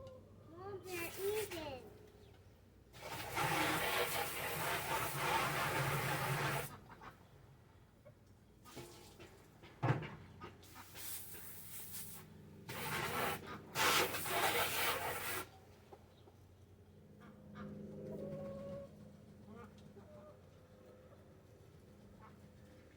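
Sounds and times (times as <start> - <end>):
chickens clucking: 6.6 - 7.4, 17.2 - 21.3.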